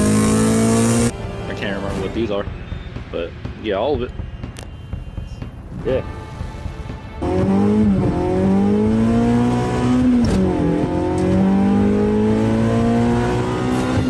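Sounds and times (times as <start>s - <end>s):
car engine accelerating: 0.0s - 1.2s, 7.2s - 14.0s.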